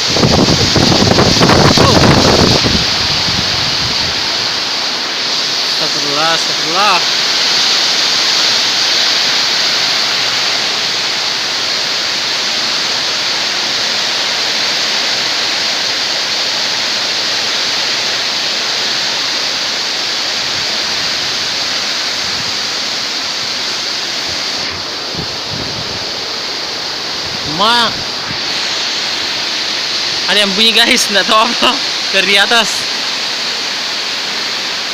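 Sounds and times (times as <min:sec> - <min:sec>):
strong wind blowing: 0:00.0 - 0:05.8, 0:20.4 - 0:30.8.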